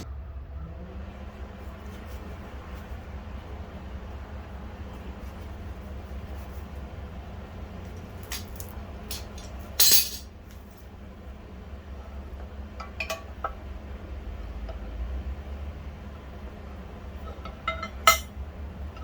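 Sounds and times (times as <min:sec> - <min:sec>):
low steady hum: 0:00.0 - 0:19.0
metal parts clinking on workbench: 0:08.6 - 0:10.3.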